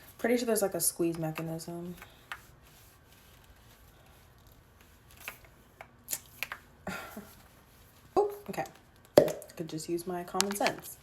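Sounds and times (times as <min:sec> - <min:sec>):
plastic case clicking and rustling: 0:10.4 - 0:10.9.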